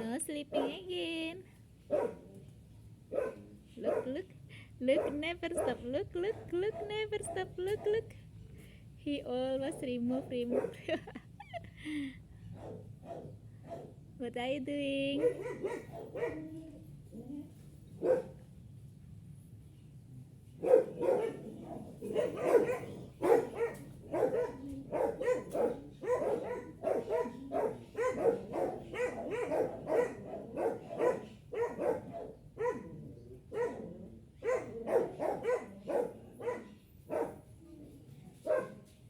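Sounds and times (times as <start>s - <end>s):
dog barking: 0.5s - 0.9s, 1.9s - 2.3s, 3.1s - 4.2s, 4.9s - 8.0s, 10.3s - 10.9s, 12.5s - 14.0s, 15.2s - 16.6s, 18.0s - 18.4s, 20.6s - 37.5s, 38.4s - 38.9s.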